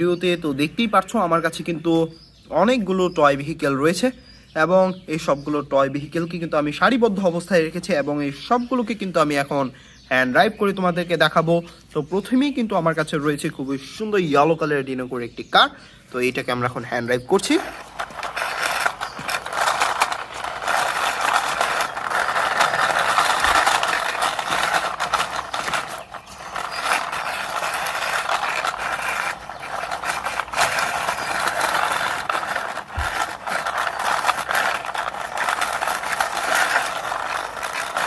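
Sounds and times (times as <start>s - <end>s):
toy car wheels rattling: 16.9s - 38.0s.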